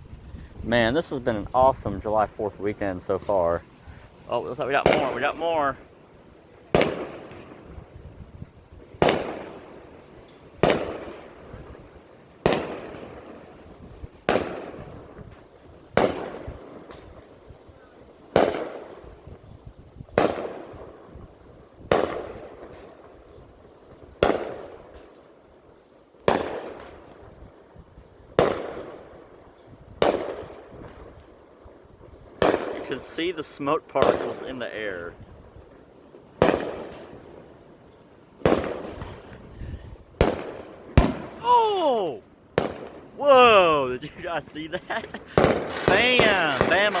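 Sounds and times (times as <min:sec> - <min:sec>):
fireworks booming: 0:04.3 - 0:05.8, 0:06.7 - 0:10.0, 0:10.6 - 0:17.3, 0:18.3 - 0:23.1, 0:24.2 - 0:25.1, 0:26.3 - 0:27.4, 0:28.4 - 0:29.3, 0:30.0 - 0:31.4, 0:32.1 - 0:35.7, 0:36.3 - 0:37.5, 0:38.4 - 0:47.0.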